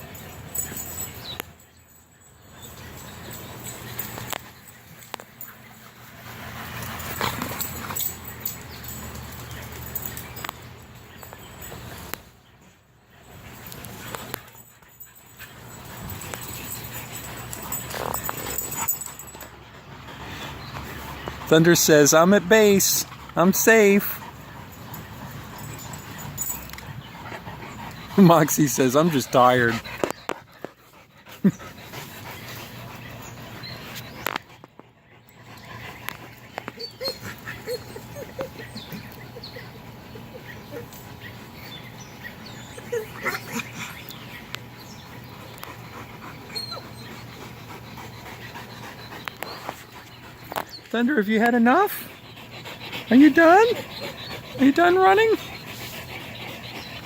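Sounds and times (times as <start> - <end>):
dogs running and playing: 0.0 - 57.0
dog whining: 36.6 - 41.6, 42.2 - 44.2, 46.2 - 47.8.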